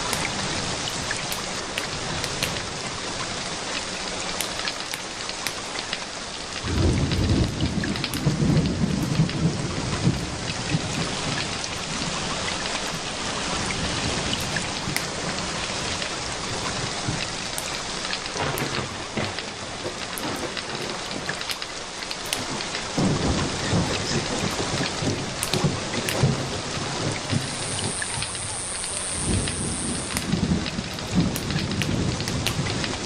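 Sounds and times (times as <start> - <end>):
rain falling: 0.0 - 33.0
sharp crackles and ticks: 0.0 - 33.0
low thunder rumble: 6.5 - 17.5, 22.4 - 33.0.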